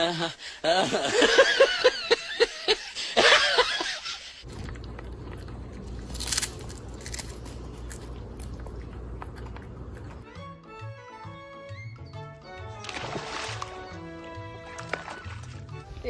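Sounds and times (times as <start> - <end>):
person laughing: 0.0 - 4.4
low steady hum: 4.4 - 10.3.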